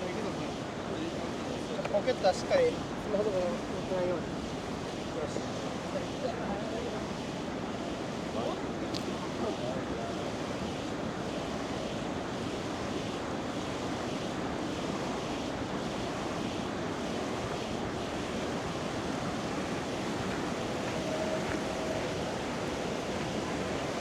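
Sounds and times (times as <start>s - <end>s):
river water flowing: 18.3s - 24.0s.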